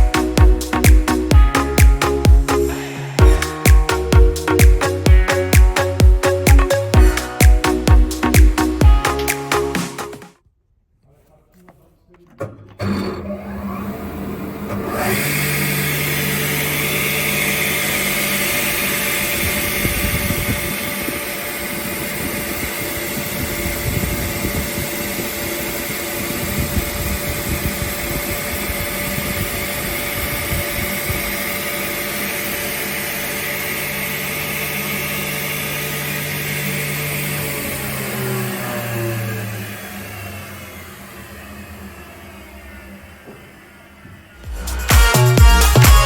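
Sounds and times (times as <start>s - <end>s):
circular saw running: 12.8s - 45.8s.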